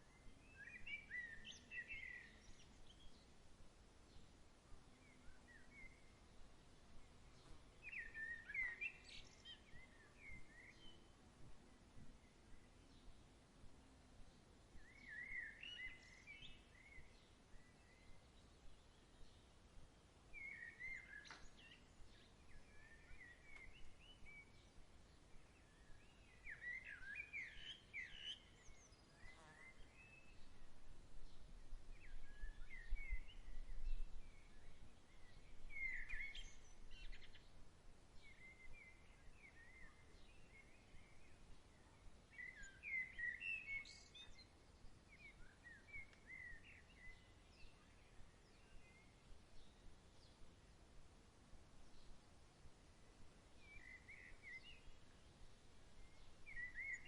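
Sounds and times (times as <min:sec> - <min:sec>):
birds chirping and singing: 0:56.0 - 0:57.0.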